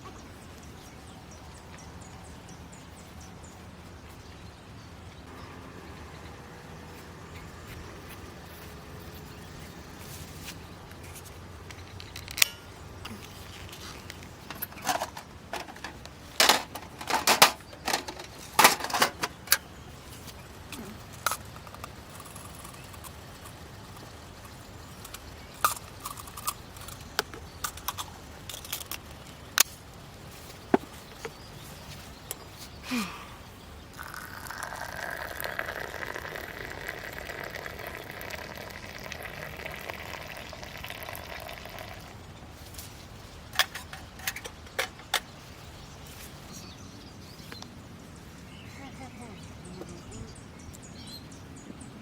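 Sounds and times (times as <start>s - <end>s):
small hard objects clinking: 20.7s - 29.7s, 34.0s - 42.2s.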